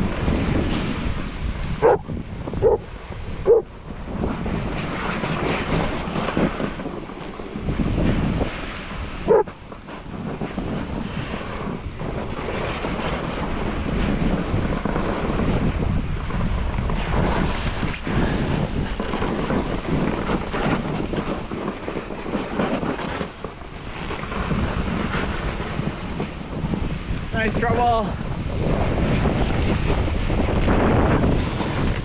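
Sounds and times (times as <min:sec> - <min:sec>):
snowboard scraping over snow: 0:00.0 - 0:32.0
wind buffeting microphone: 0:00.0 - 0:32.0
dog bark: 0:01.8 - 0:02.0, 0:02.6 - 0:02.8, 0:03.5 - 0:03.7, 0:09.3 - 0:09.5.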